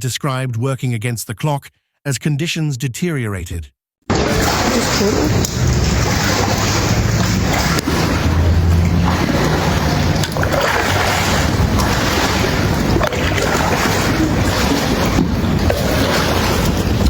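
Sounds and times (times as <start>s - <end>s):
floodwater rushing: 4.1s - 17.0s
wind on microphone: 4.4s - 17.0s.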